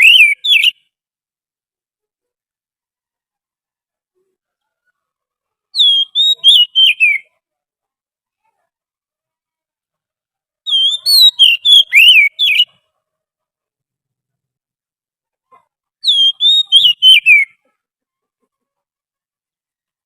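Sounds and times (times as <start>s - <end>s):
bird whistling song: 0.0s - 0.9s, 5.8s - 7.3s, 10.7s - 12.8s, 16.0s - 17.6s.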